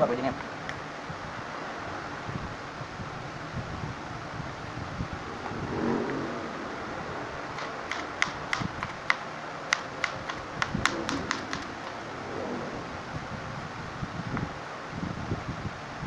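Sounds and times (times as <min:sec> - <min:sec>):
knife tapping cutting board: 0:07.6 - 0:12.0.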